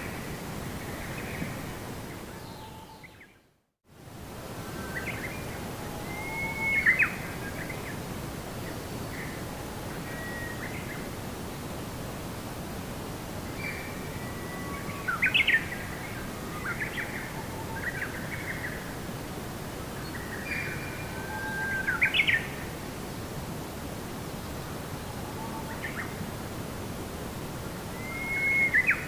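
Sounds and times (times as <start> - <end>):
songbird singing: 0.0 - 3.5, 4.7 - 11.1, 13.4 - 19.0, 19.9 - 22.7, 24.2 - 26.2, 27.9 - 29.0
background hiss: 0.0 - 29.0.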